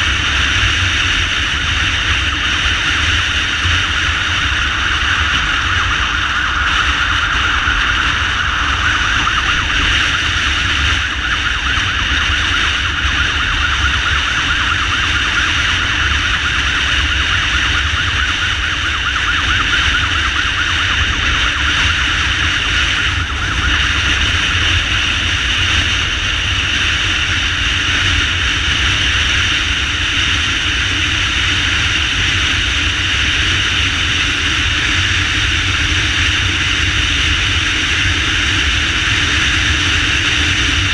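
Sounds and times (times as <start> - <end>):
motorcycle rumble: 0.0 - 40.9
ambulance motorcycle siren: 3.6 - 26.3.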